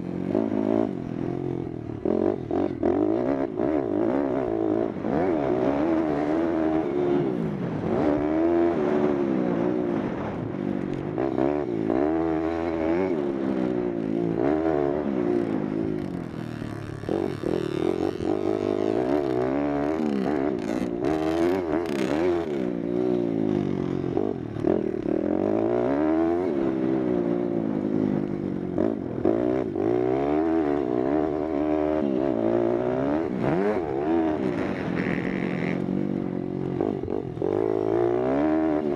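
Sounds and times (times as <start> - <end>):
motorbike engine revving: 11.1 - 38.9.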